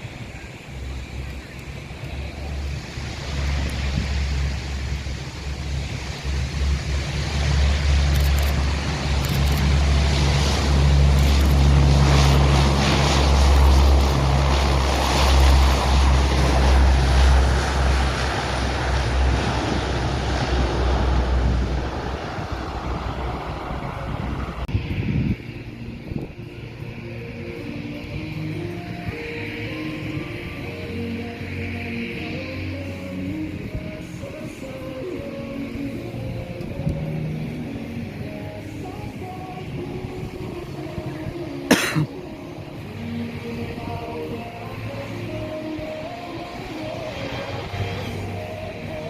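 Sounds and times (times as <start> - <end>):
wind buffeting microphone: 0.0 - 27.3, 38.1 - 41.7
aircraft flying past: 0.0 - 49.0.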